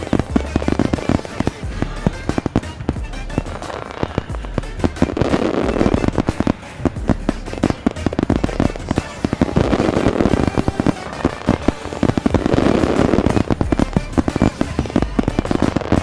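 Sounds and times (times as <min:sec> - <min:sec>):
fireworks bangs and crackles: 0:00.0 - 0:16.0
music playing: 0:00.0 - 0:16.0.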